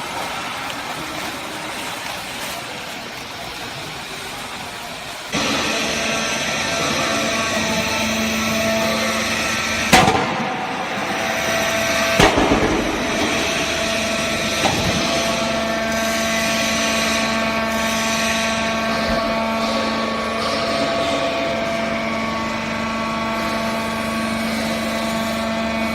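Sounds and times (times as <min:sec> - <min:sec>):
baling press humming: 0:05.0 - 0:25.9
sharp bangs: 0:09.9 - 0:11.0, 0:12.0 - 0:15.4.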